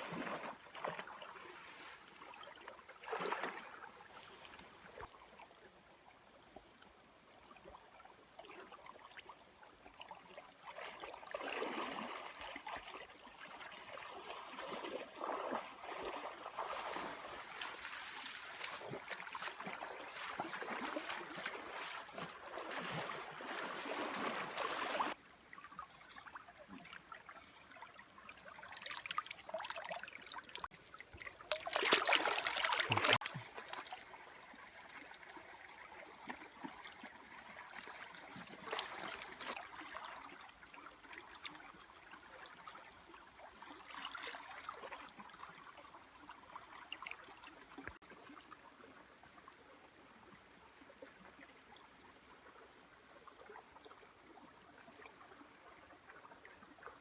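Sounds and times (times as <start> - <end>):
water splashing and rushing: 14.2 - 25.2, 28.7 - 34.0
water trickling: 27.6 - 34.6.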